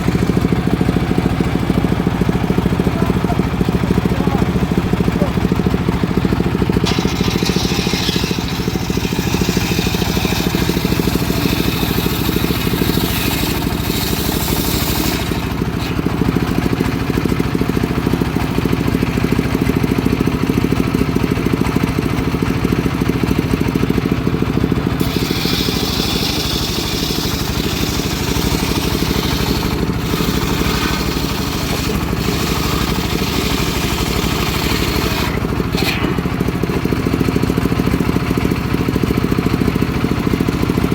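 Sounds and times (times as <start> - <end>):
saw blade whine cutting wood: 0.0 - 19.0, 24.2 - 37.9
sawmill engine running: 0.0 - 40.9.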